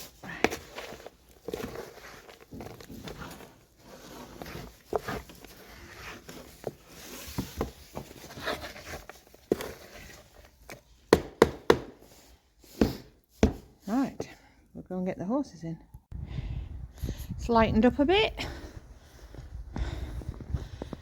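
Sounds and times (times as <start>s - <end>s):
rustling: 0.0s - 11.0s.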